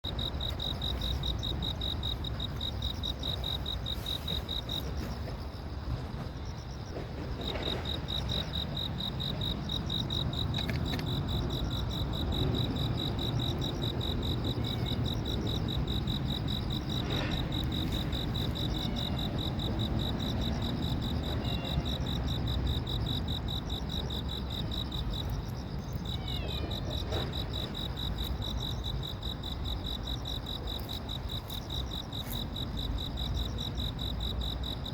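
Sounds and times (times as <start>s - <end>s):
insect trilling: 9.2s - 22.2s.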